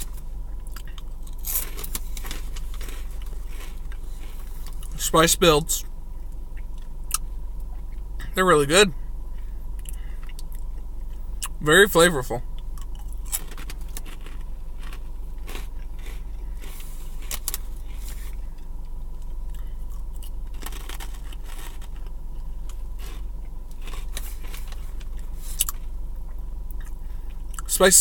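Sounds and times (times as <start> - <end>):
crunchy snack being chewed: 0.0 - 5.0, 9.8 - 11.6, 12.6 - 27.7
steady low hum: 0.0 - 28.0.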